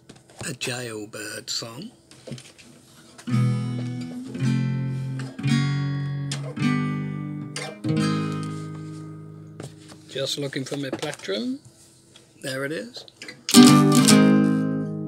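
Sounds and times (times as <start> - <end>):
acoustic guitar strummed: 3.3 - 10.2, 13.4 - 15.0.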